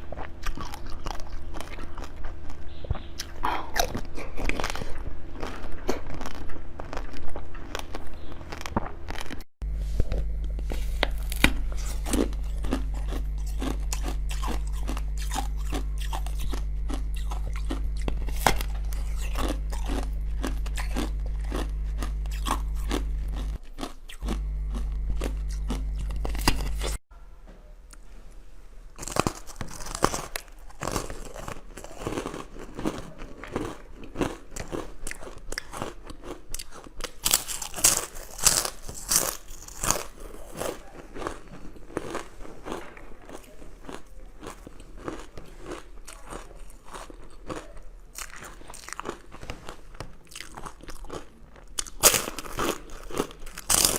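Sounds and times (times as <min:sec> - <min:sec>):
crunchy chewing: 0:00.0 - 0:27.0, 0:29.0 - 0:53.9
low hum: 0:00.0 - 0:29.0.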